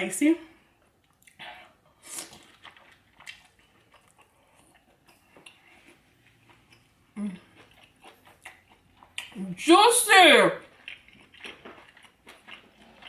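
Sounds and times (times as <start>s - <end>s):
chewing and mouth smacks: 0.8s - 1.5s, 2.1s - 9.4s, 10.6s - 13.0s.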